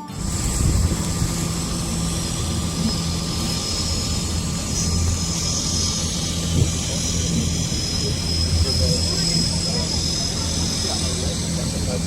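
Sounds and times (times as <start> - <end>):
wind and water hiss: 0.0 - 8.8
boat engines droning: 0.0 - 12.0.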